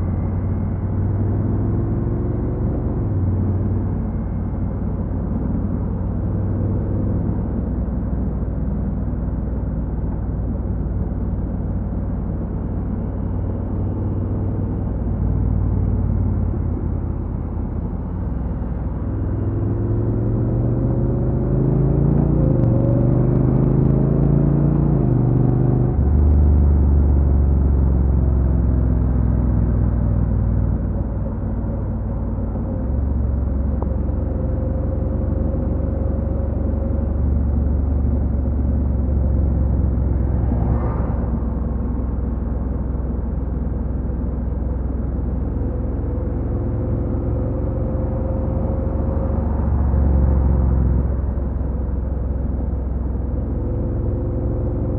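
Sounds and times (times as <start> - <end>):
road noise: 0.0 - 54.9.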